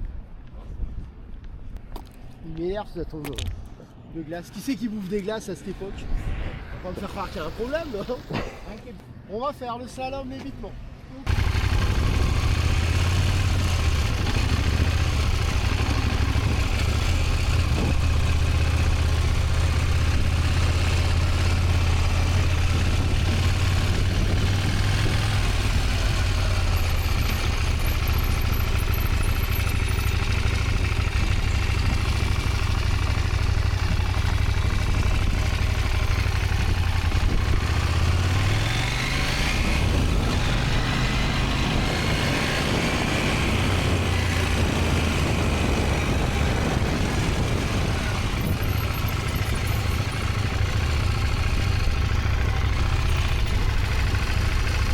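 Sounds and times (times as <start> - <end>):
motorcycle engine running: 11.3 - 54.9.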